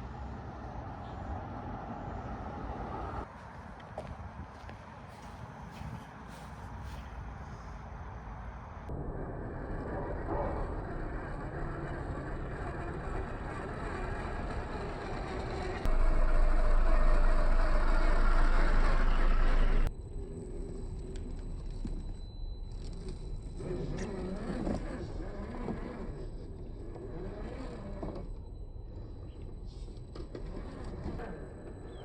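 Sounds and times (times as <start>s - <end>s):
low rumble: 8.8s - 23.6s
electric motor and gearbox running: 11.0s - 32.0s.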